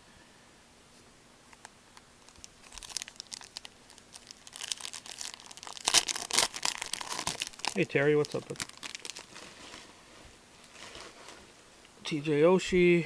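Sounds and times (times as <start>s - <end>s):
card pack wrapper tearing and crinkling: 2.3s - 9.5s.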